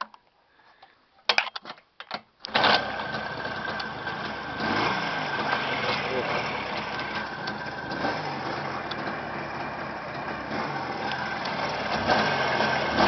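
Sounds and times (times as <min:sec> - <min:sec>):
motorcycle engine idling: 0:02.6 - 0:13.0.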